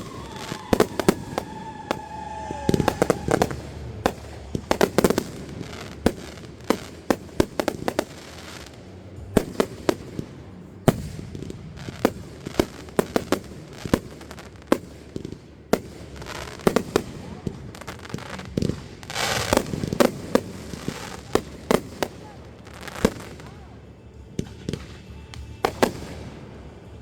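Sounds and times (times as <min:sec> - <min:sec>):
falling firework whistle: 0:00.0 - 0:06.3, 0:18.3 - 0:21.3
fireworks bangs and pops: 0:00.0 - 0:27.0.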